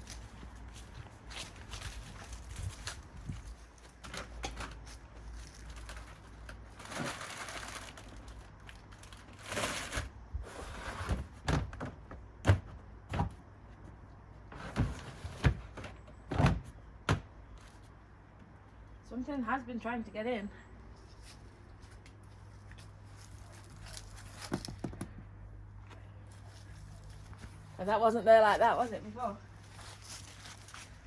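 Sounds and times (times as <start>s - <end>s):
packets rustling: 4.8s - 10.2s.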